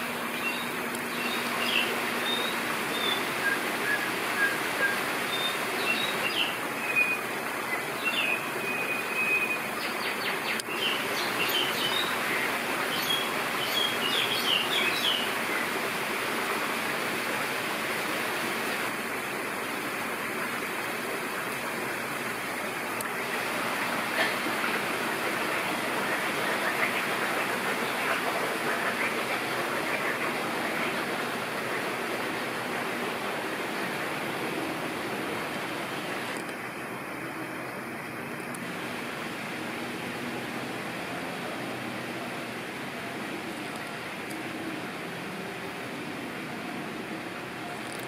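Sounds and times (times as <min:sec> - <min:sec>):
small songbirds chirping: 0:00.4 - 0:15.4
steady rushing noise: 0:15.3 - 0:47.6.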